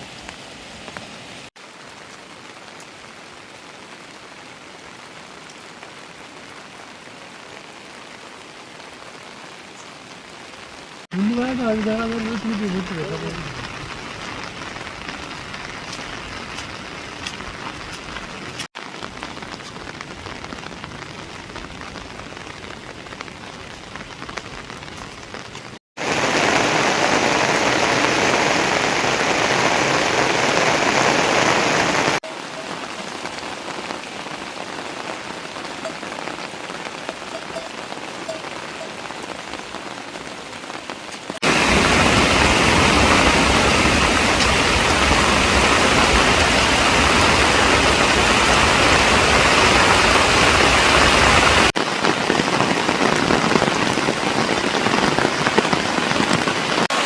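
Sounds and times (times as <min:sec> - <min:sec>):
heavy rain hiss and patter: 0:00.0 - 0:57.0
loud dense downpour: 0:00.0 - 0:57.0.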